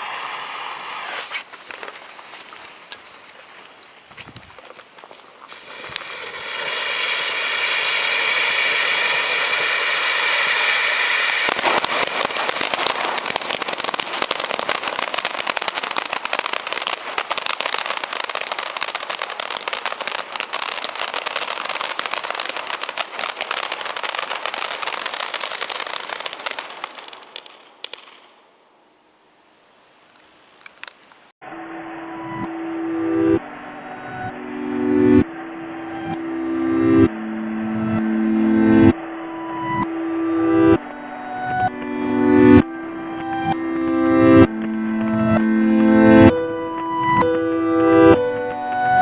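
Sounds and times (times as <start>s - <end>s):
firework whistling hiss: 0.0s - 3.0s, 5.4s - 28.3s
firework crackling: 0.0s - 28.6s, 29.5s - 31.4s.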